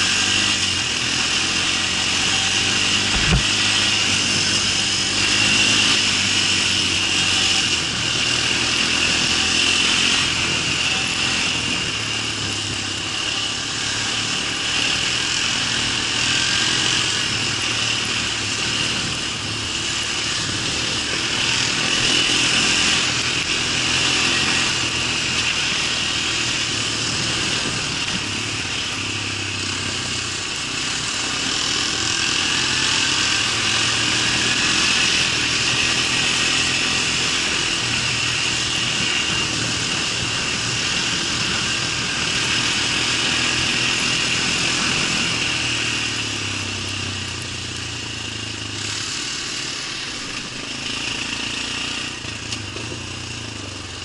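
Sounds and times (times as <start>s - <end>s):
small engine running: 0.0s - 54.0s.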